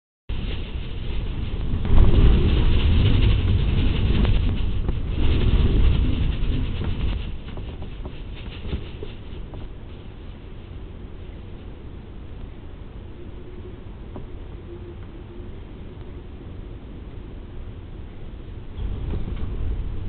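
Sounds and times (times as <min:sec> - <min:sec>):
crackling patter: 0:00.3 - 0:15.2
storm wind gusting: 0:00.3 - 0:20.0
wind rumble on microphone: 0:00.3 - 0:20.0.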